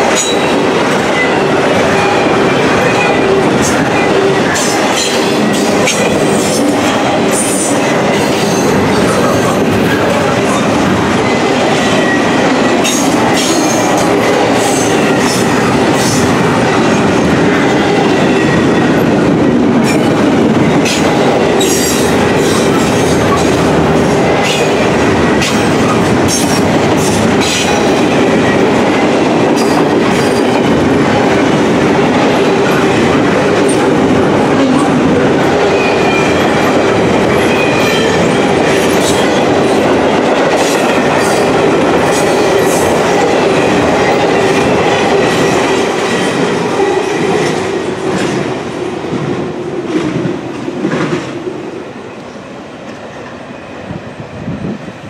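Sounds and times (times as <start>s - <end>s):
train wheels rumbling on rail: 0.0s - 55.0s
clicks and clanks at rail joints: 12.8s - 16.4s.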